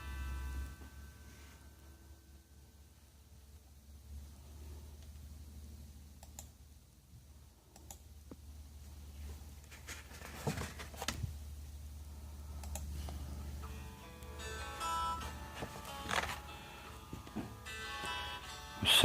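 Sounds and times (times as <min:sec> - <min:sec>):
low steady hum: 0:00.0 - 0:19.0
sharp clicks: 0:06.2 - 0:06.6, 0:07.7 - 0:08.1, 0:12.6 - 0:12.9.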